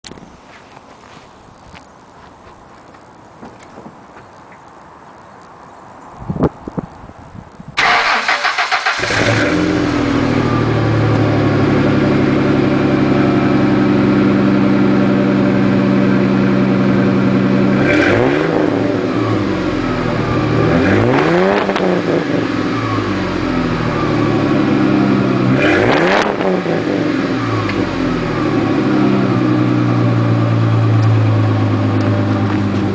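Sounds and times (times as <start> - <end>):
car engine idling and revving: 7.8 - 32.9.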